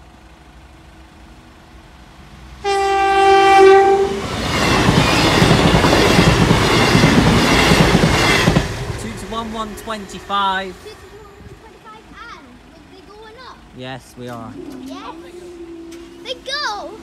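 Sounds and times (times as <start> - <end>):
train passing with wheels rushing: 0.0 - 17.0
train horn blast: 2.6 - 4.8, 14.5 - 16.5.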